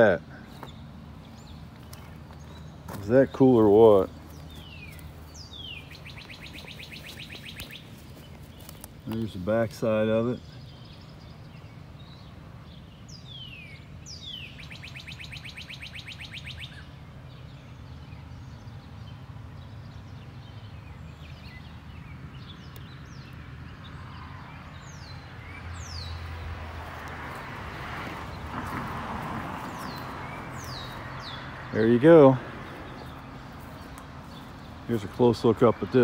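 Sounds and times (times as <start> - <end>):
birds calling: 0.0 - 36.0.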